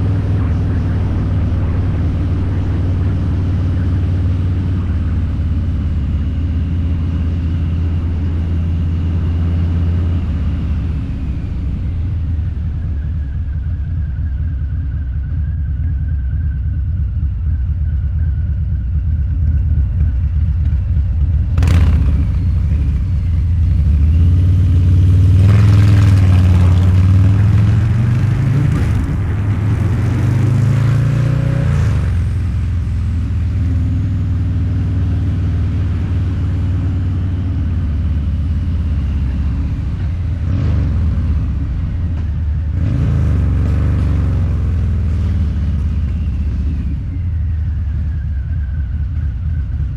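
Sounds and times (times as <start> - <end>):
motorcycle engine rumbling: 0.0 - 49.9
sharp crack: 21.6 - 33.8.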